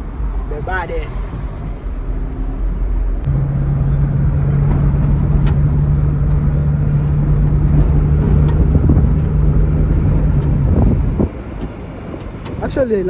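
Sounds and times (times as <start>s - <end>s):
road rumble: 0.0s - 13.0s
truck engine running: 0.0s - 13.0s.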